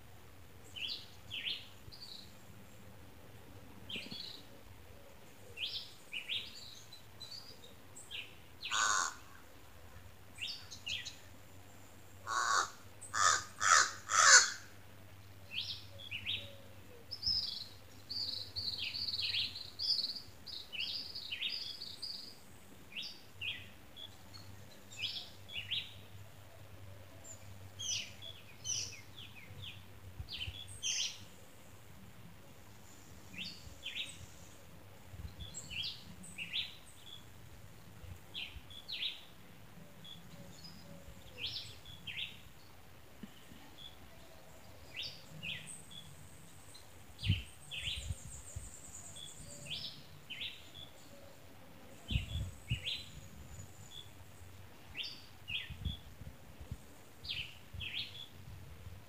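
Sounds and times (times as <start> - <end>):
harsh bird calls: 8.6 - 9.3, 12.2 - 14.6.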